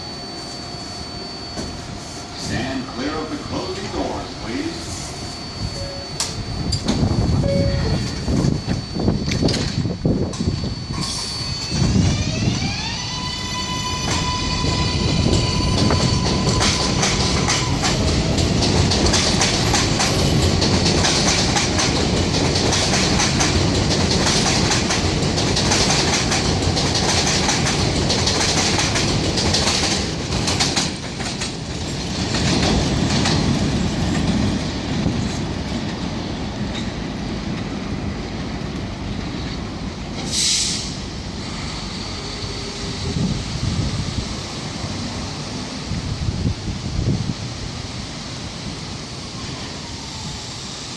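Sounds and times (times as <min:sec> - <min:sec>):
subway train wheels clattering: 0:00.0 - 0:50.9
short high hiss: 0:40.2 - 0:41.7.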